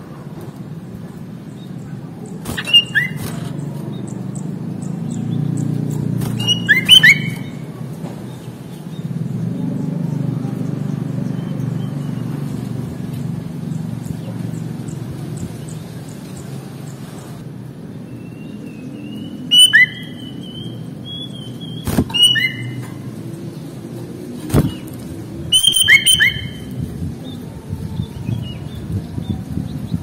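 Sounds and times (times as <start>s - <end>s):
bird whistled calls: 2.5s - 3.6s, 6.3s - 7.6s, 18.2s - 22.9s, 25.5s - 26.8s.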